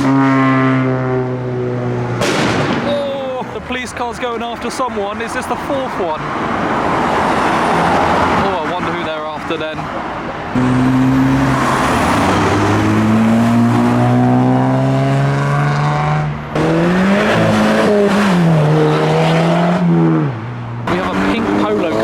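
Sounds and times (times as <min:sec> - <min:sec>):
car engine accelerating: 0:00.0 - 0:02.9, 0:10.5 - 0:22.0.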